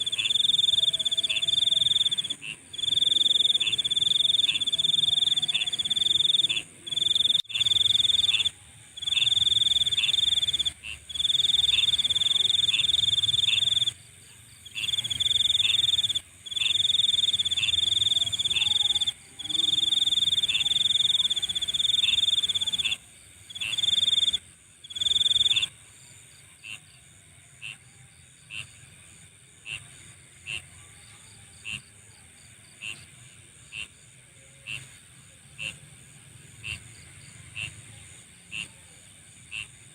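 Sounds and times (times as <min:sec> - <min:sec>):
insect high-pitched trill: 0:00.0 - 0:25.8
insect hiss: 0:00.0 - 0:39.9.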